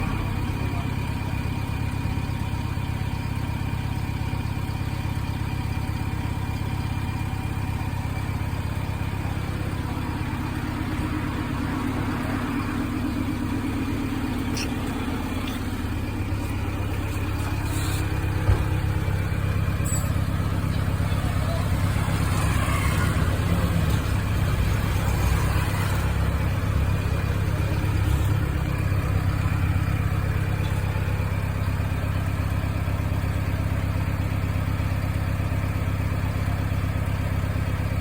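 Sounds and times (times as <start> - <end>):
engine running at low revs: 7.4 - 32.6.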